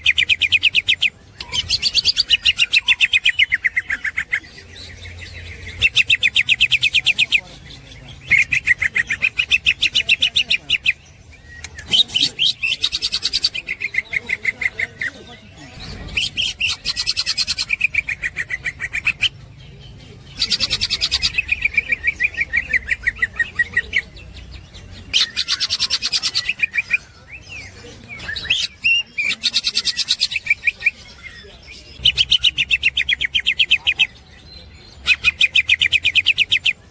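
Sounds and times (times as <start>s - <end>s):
bird fast high chatter: 0.0s - 36.9s.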